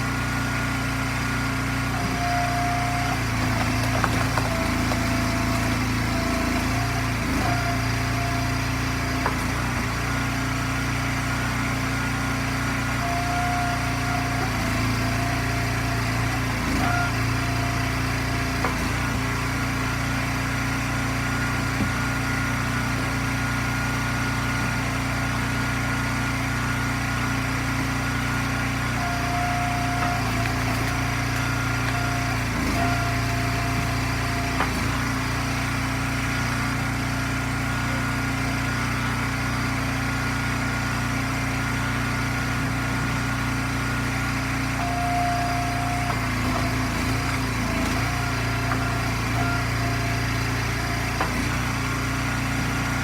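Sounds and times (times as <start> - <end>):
small gas engine running: 0.0 - 53.0.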